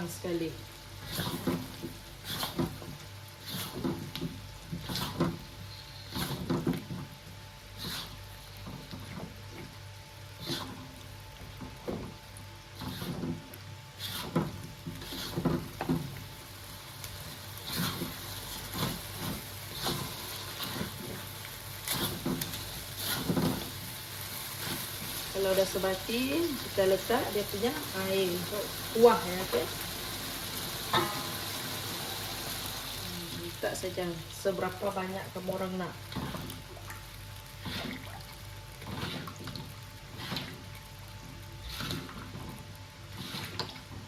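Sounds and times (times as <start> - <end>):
curry paste sizzling in a pot: 0.0 - 44.0
spatula scraping a pot: 1.0 - 2.8, 3.4 - 4.1, 4.7 - 6.8, 7.7 - 9.2, 10.4 - 10.9, 12.8 - 13.4, 14.0 - 16.0, 17.6 - 23.8, 38.8 - 39.4, 41.6 - 42.4, 43.1 - 43.8.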